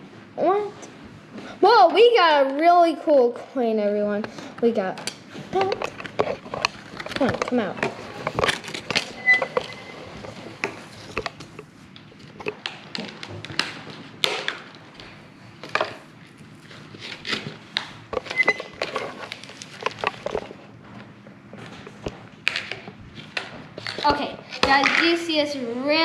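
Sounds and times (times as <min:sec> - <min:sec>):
packaging crinkling: 0:07.9 - 0:09.2.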